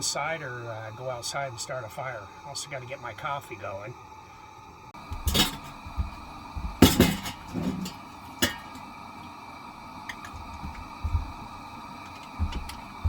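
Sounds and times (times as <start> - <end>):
kitchenware clinking: 5.2 - 5.8, 6.8 - 8.8.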